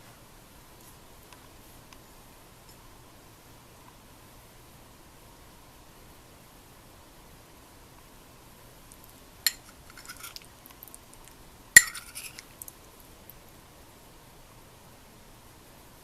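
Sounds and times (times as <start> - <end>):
utensils clinking against dishes: 9.5 - 10.4, 11.8 - 12.4.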